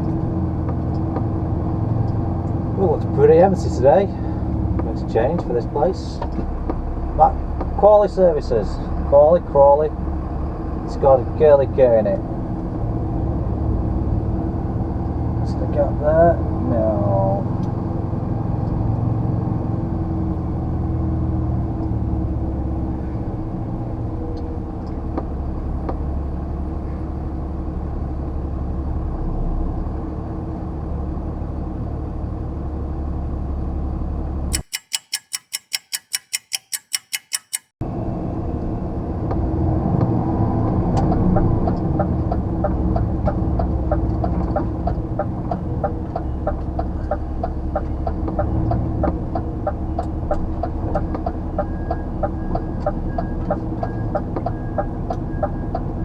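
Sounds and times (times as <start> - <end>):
lorry diesel engine running: 0.0 - 14.7
quick regular ticking: 34.6 - 37.8
sharp clicks: 34.6 - 37.8.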